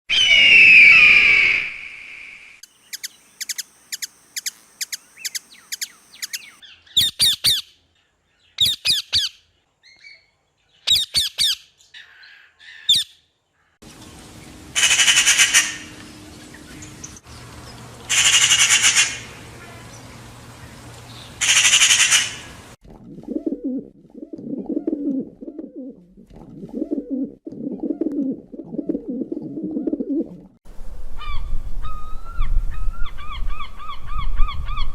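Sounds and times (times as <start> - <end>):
bird screeching: 0.1 - 2.0, 21.4 - 22.5
harsh bird screams: 0.1 - 2.6, 14.8 - 15.9, 18.1 - 19.4, 21.4 - 22.5
bird chirps and trills: 2.7 - 13.7.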